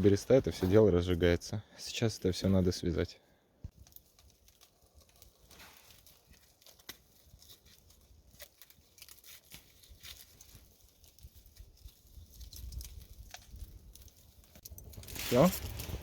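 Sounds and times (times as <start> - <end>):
rope and wood rustling: 3.7 - 16.0.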